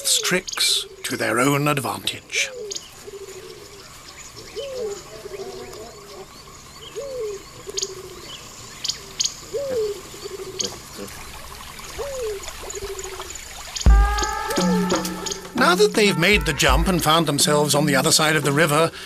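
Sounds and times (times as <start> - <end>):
high insect chorus: 0.0 - 19.0
low animal call with trill: 13.9 - 17.2.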